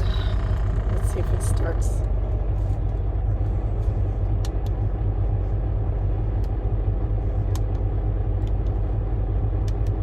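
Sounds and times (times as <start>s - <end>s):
diesel truck engine idling: 0.0s - 10.0s.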